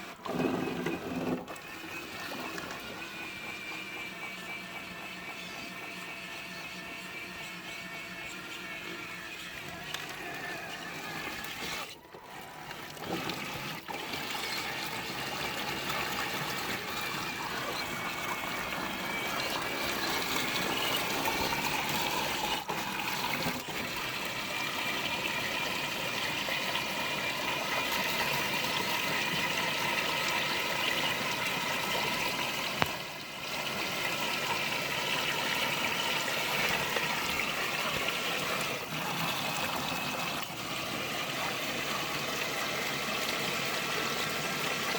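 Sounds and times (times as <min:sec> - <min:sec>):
electric motors whining: 0:00.0 - 0:44.9.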